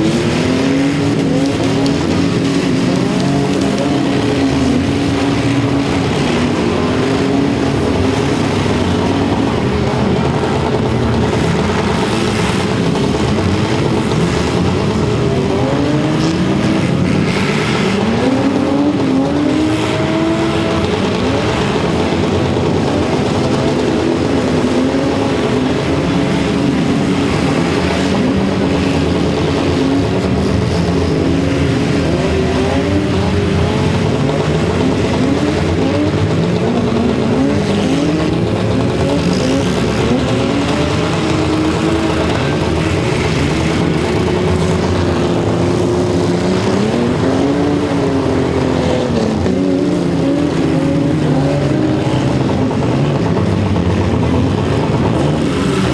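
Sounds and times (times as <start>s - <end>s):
car engines revving: 0.0s - 55.9s
continuous haze of noise: 0.0s - 55.9s.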